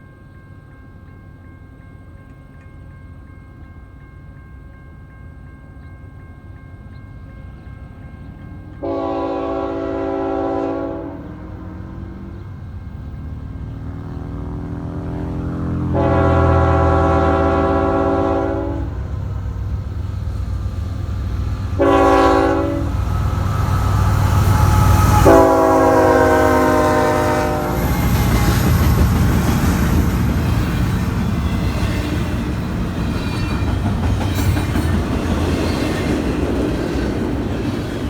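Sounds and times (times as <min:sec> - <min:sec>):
locomotive air horn blasts: 0:08.8 - 0:11.9, 0:15.1 - 0:19.0, 0:21.8 - 0:23.0, 0:24.6 - 0:28.6
train wheels rolling on rails: 0:11.3 - 0:38.0
locomotive engine rumble: 0:11.4 - 0:38.0.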